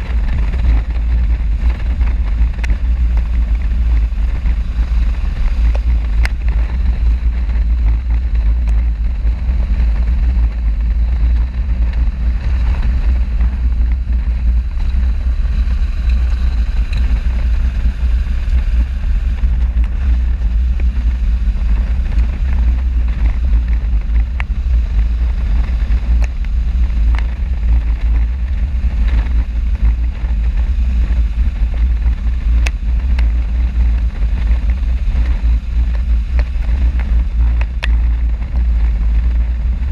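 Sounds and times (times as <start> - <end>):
motorcycle running: 0.0 - 39.9
wind buffeting microphone: 0.0 - 39.9.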